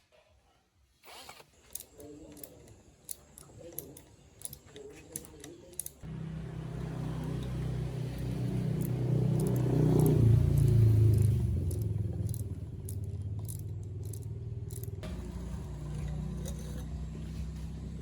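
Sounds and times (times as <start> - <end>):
light metallic clicks and rattles: 1.6 - 6.1, 7.2 - 15.1
motor running: 6.0 - 18.0.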